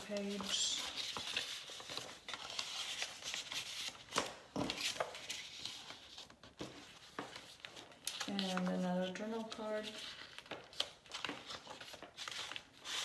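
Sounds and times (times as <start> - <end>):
paper pages rustling: 0.0 - 13.0.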